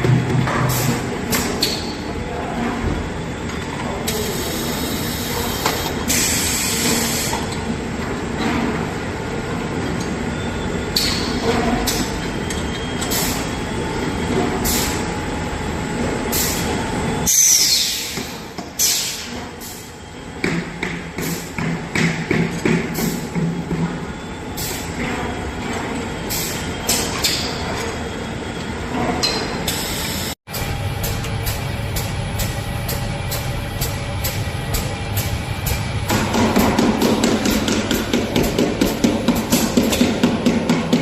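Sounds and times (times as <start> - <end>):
machine hisses and clicks: 4.1 - 7.6, 14.6 - 15.1, 17.3 - 19.9, 22.9 - 23.3.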